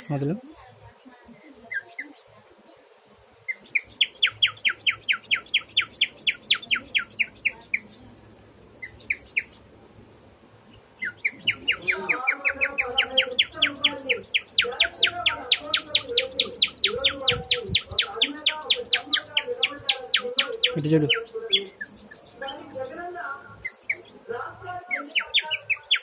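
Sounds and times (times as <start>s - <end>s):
songbird whistling: 3.5s - 9.6s, 11.0s - 22.9s, 23.6s - 24.2s, 24.9s - 26.0s.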